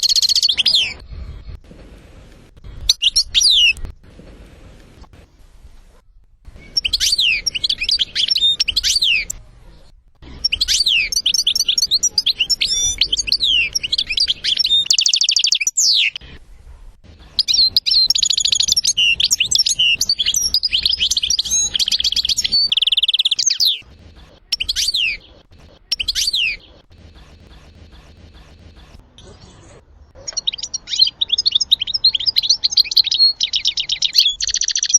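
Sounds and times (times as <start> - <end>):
finch twittering song: 0.0 - 1.0, 2.9 - 3.8, 6.5 - 16.6, 17.2 - 28.9, 30.2 - 34.9
brief bird calls: 2.7 - 4.7, 5.4 - 34.9.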